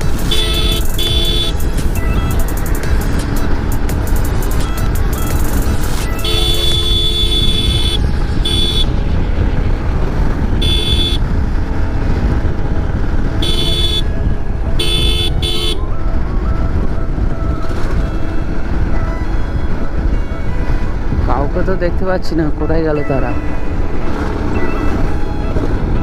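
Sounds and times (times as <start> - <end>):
motorcycle engine: 0.0 - 21.3, 23.3 - 26.0
wind rumble: 0.0 - 26.0
vehicle horn honking: 0.2 - 2.4, 6.0 - 9.0, 10.6 - 11.3, 13.4 - 14.2, 14.8 - 15.9, 17.6 - 18.9, 24.5 - 25.8.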